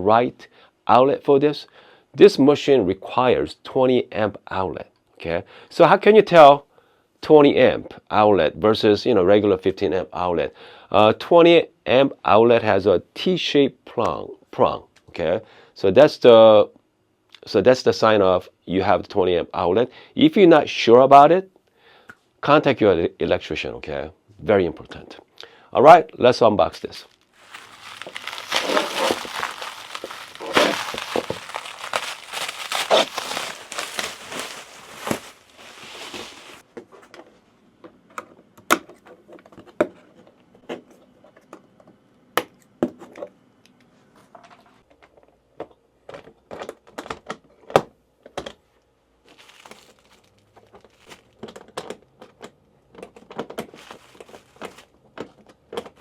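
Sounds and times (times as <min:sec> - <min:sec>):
packaging tearing and crinkling: 0:27.0 - 0:36.6, 0:49.3 - 0:51.3, 0:53.7 - 0:54.9.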